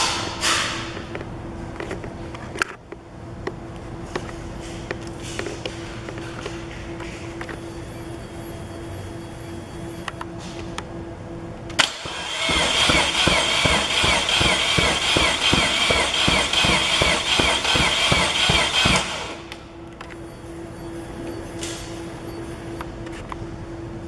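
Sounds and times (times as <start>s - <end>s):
starter motor cranking engine: 11.7s - 19.6s
starter motor click: 11.7s - 20.2s.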